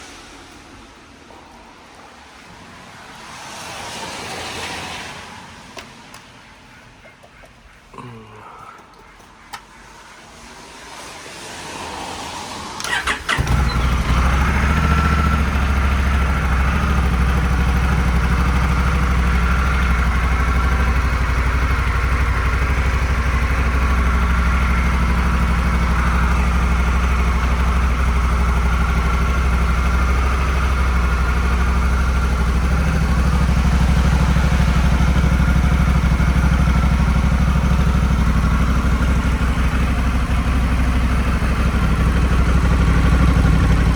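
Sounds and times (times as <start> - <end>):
motorcycle starter: 12.8 - 15.4
motorcycle engine idling: 12.9 - 43.9.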